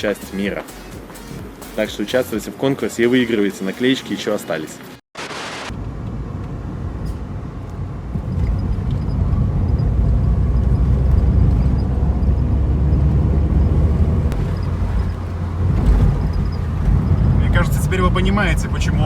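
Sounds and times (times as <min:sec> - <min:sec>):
car engine and road noise: 0:04.8 - 0:19.0.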